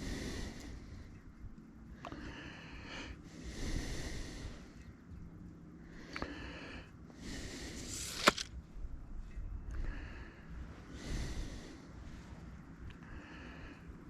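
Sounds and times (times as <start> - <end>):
heavy breathing: 0.0 - 1.2, 2.0 - 4.9, 5.8 - 8.5, 9.8 - 14.0.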